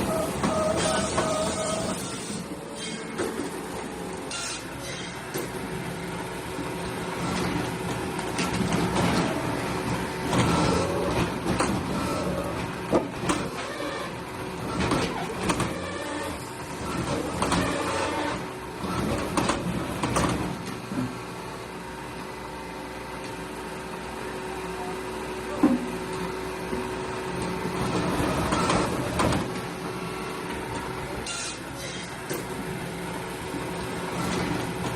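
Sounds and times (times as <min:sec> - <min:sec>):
machine motor humming: 0:00.0 - 0:04.3.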